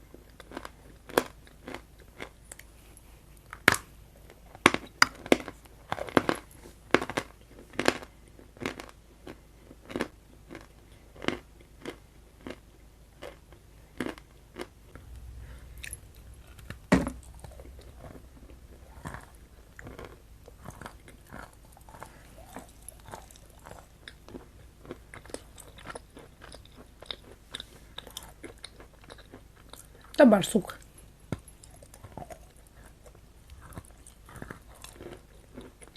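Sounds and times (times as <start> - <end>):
chewing and biting: 0.1 - 30.2, 30.8 - 35.9.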